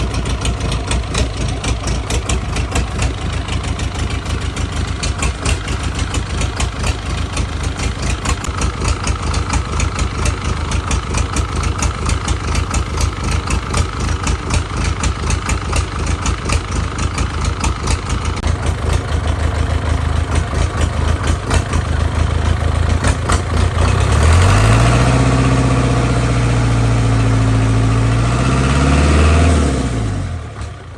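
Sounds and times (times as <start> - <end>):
diesel engine knocking: 0.0 - 30.9.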